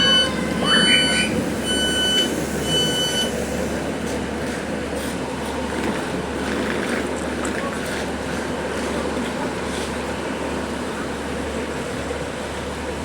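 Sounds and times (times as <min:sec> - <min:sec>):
train door warning beeps: 0:00.0 - 0:03.8
diesel engine rumble: 0:00.0 - 0:13.0.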